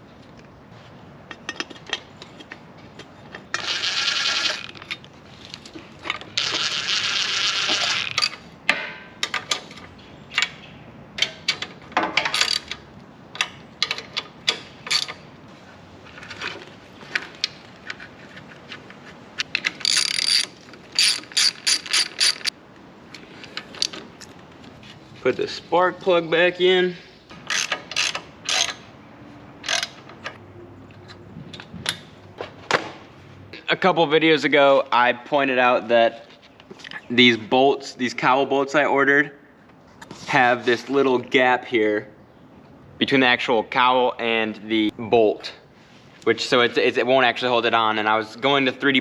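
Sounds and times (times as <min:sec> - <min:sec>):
ratchet wrench clicking: 0:19.8 - 0:22.5, 0:27.5 - 0:28.8, 0:29.6 - 0:30.0.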